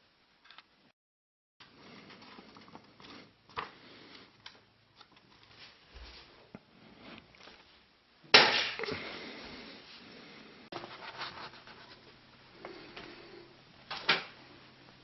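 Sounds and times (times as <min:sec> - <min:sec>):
paper rustling and creasing: 0:10.8 - 0:12.2.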